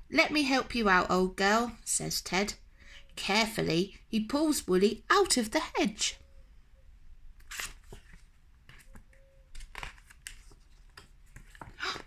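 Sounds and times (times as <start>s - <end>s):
book handling noises: 7.4s - 12.0s
paper rustling: 7.4s - 12.0s.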